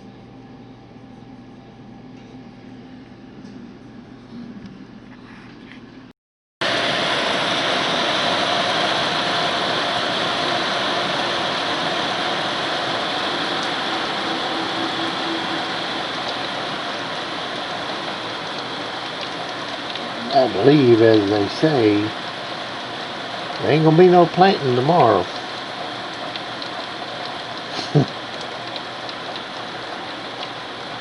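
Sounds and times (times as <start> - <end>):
heavy rain pouring: 6.6 - 31.0.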